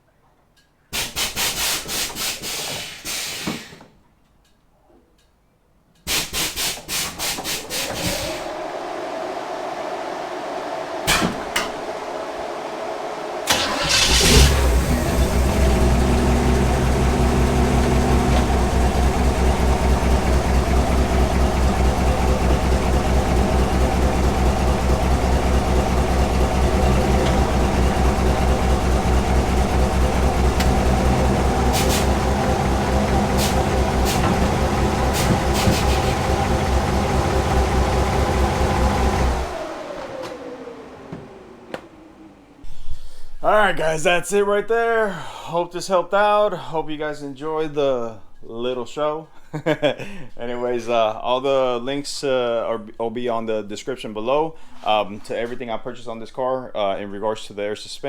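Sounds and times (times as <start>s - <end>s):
car engine starting and idling: 6.8s - 44.1s
steady hum: 8.0s - 42.8s.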